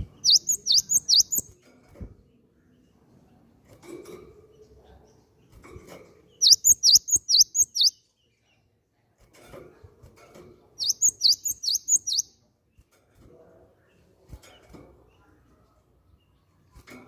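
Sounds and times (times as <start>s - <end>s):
great tit singing: 0.0s - 1.5s, 6.3s - 8.1s, 10.8s - 12.3s.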